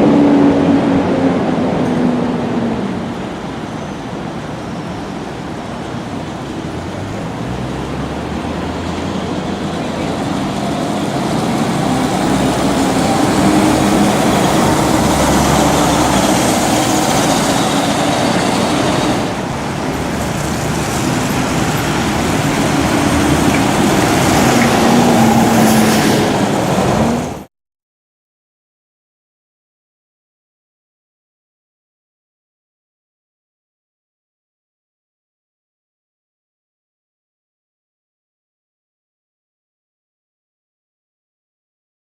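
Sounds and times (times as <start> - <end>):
diesel bus engine under load: 0.0 - 27.5.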